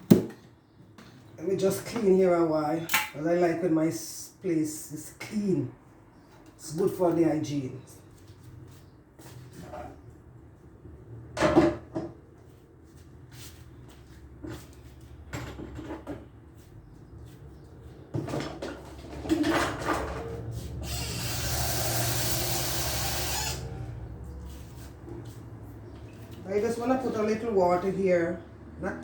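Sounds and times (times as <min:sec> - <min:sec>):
items knocking and clattering: 0:00.0 - 0:01.2, 0:15.3 - 0:16.3, 0:18.1 - 0:20.3.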